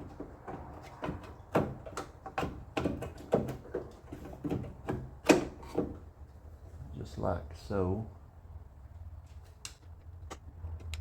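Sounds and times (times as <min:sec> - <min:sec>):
clicks and knocks of door latch: 0:00.1 - 0:06.0.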